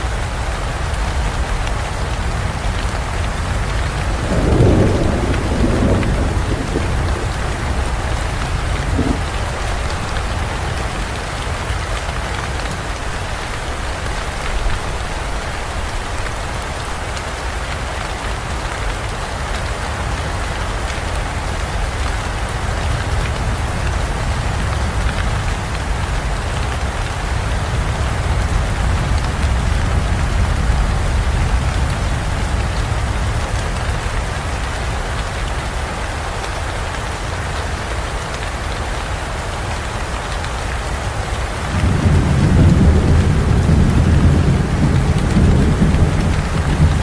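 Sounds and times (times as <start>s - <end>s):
heavy rain: 0.0s - 47.0s
thunder rumble: 1.6s - 17.1s, 41.6s - 47.0s
short knock of thunder: 4.2s - 10.4s.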